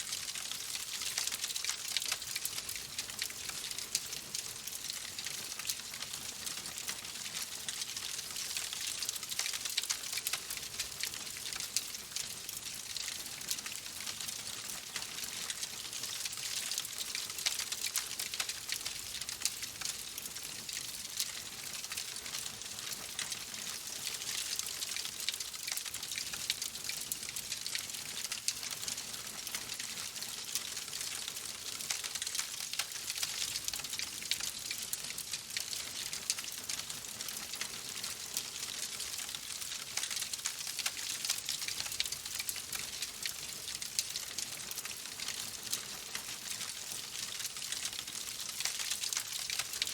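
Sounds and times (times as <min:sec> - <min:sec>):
wood fire crackling: 0:40.0 - 0:49.9.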